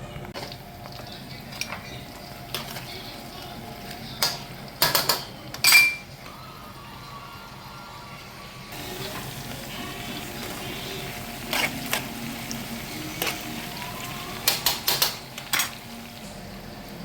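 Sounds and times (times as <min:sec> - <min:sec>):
utensils clattering against a pan: 0:00.3 - 0:06.3, 0:09.0 - 0:13.8, 0:14.4 - 0:16.0.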